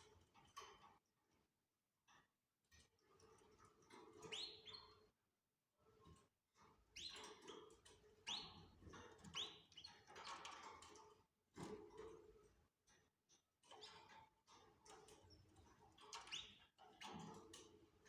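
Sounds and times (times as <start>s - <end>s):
canary chirping: 4.0s - 5.1s, 6.9s - 10.7s, 16.0s - 17.2s.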